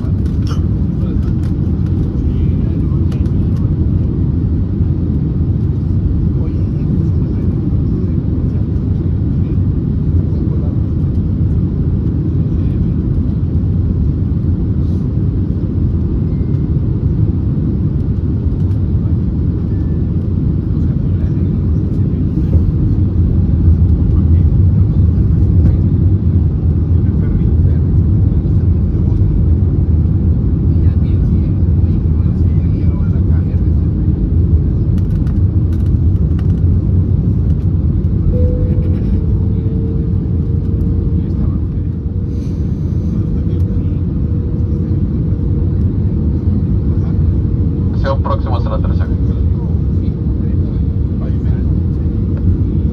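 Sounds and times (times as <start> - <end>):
aircraft engines rumbling: 0.0 - 52.9
rushing air: 42.0 - 43.4.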